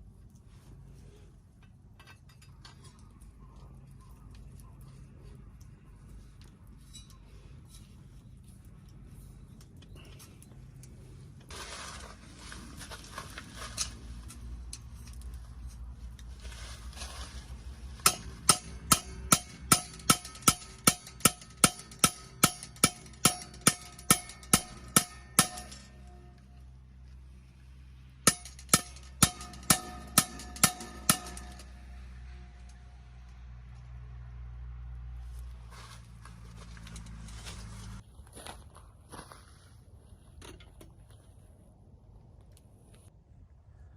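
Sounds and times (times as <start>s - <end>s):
rustling: 4.9s - 18.4s
sharp metallic strikes ringing: 28.3s - 32.0s.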